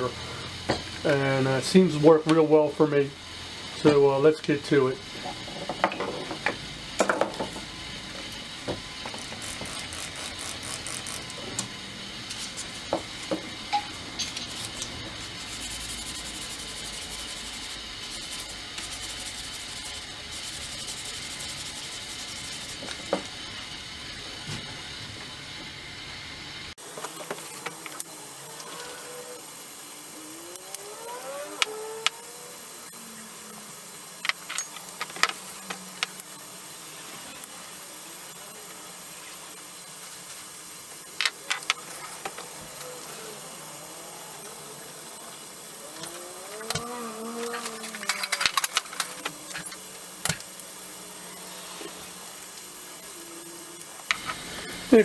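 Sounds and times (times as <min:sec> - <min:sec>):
sandpaper scraping steel: 0:14.3 - 0:22.8, 0:41.4 - 0:50.2.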